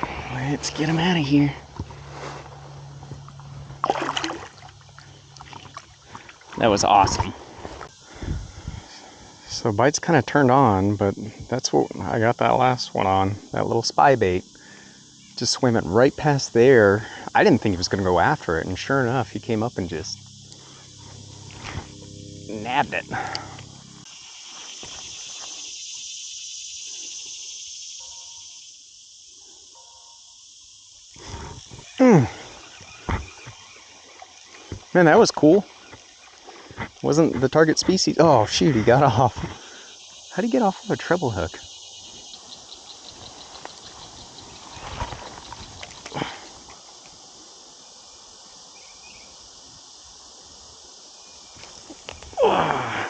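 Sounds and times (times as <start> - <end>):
creek ambience: 0.0 - 27.4, 30.8 - 53.0
insects singing: 0.0 - 53.0
man groaning: 32.0 - 32.4, 52.4 - 53.0.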